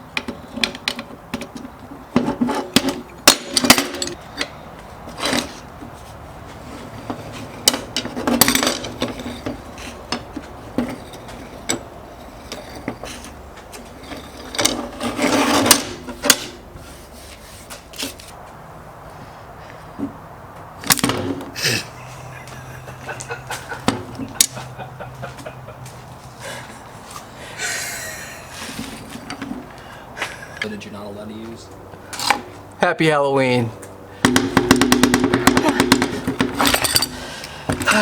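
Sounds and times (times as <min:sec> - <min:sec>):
tool parts clicking and knocking: 0:00.1 - 0:04.6, 0:07.1 - 0:11.9, 0:12.5 - 0:16.6, 0:34.2 - 0:38.0.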